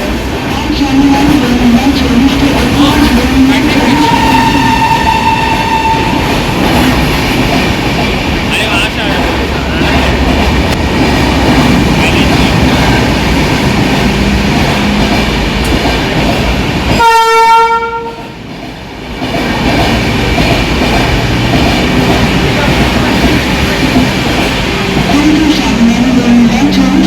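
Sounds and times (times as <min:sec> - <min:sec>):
train rumble and wheel clatter: 0:00.0 - 0:27.0
train horn blast: 0:03.8 - 0:06.3, 0:17.0 - 0:18.4.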